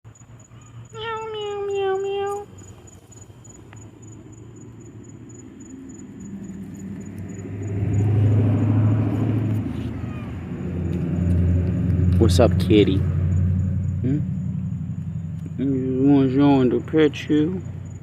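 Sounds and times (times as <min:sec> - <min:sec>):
low rumble: 0:04.2 - 0:17.0
cat meowing: 0:09.5 - 0:10.6.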